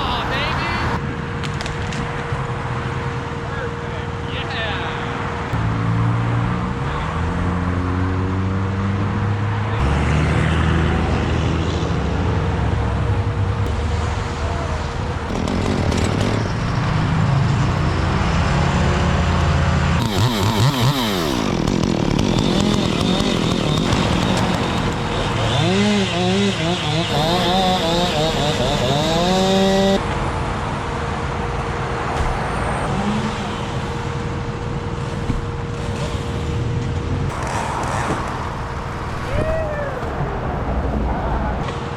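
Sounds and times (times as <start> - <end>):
chainsaw engine revving: 15.2 - 19.0, 19.9 - 30.0, 32.8 - 36.6.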